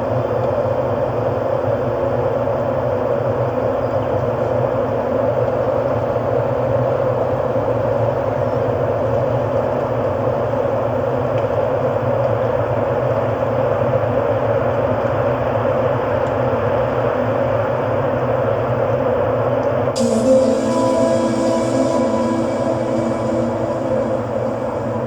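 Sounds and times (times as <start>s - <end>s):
ambient rumbling drone: 20.0s - 25.0s.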